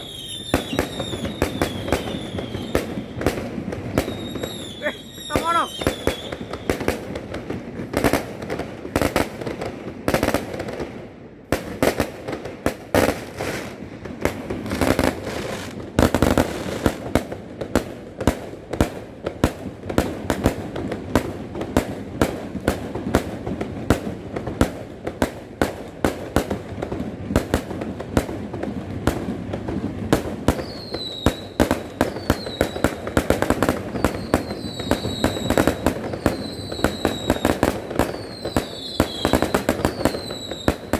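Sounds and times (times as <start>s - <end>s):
firework whistles: 0.0s - 6.9s, 30.5s - 40.9s
fireworks bangs and crackling: 0.0s - 40.9s.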